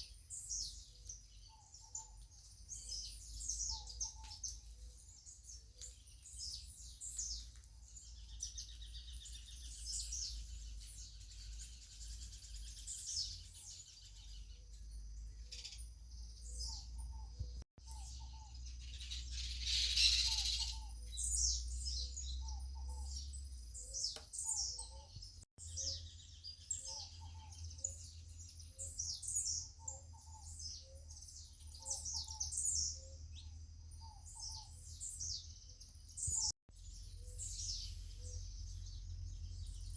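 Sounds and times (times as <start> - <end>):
birds chirping and calling: 0.0 - 39.9
lower bird call: 15.4 - 26.0.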